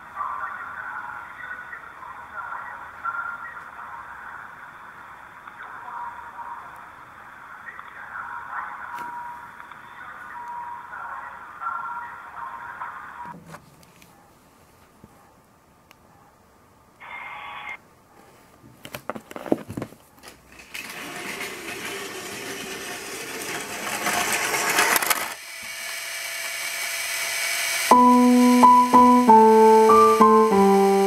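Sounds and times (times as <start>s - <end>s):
toy train running: 20.5s - 31.0s
electronic organ melody: 27.9s - 31.0s.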